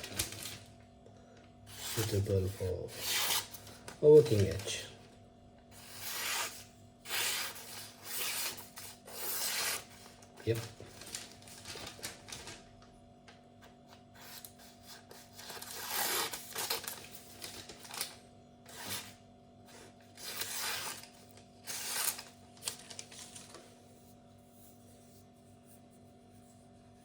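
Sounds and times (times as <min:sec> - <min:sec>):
knife slicing paper: 0:01.7 - 0:04.8, 0:05.8 - 0:12.0, 0:14.2 - 0:18.1, 0:18.7 - 0:19.2, 0:20.1 - 0:23.6.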